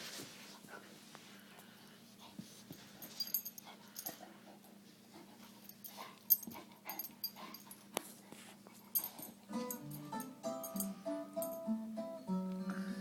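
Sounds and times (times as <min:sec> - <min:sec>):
breathy dog noises: 0:00.4 - 0:09.4.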